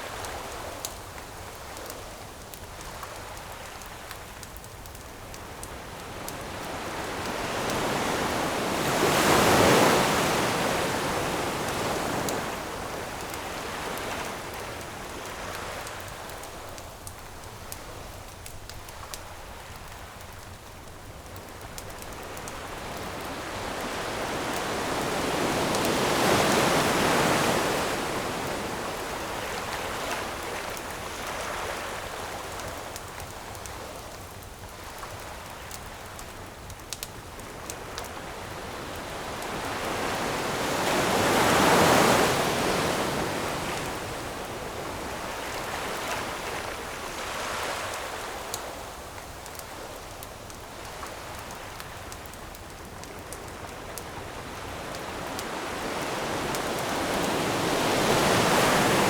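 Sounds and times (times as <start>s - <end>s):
campfire crackling: 0.0s - 59.0s
ocean waves crashing on shore: 5.4s - 18.0s, 21.4s - 33.0s, 37.4s - 49.8s, 50.7s - 59.0s.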